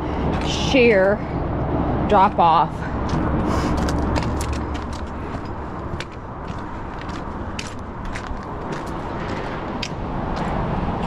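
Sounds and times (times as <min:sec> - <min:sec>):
distant highway traffic rumble: 0:00.0 - 0:11.0
footsteps on rocky trail: 0:02.9 - 0:10.7.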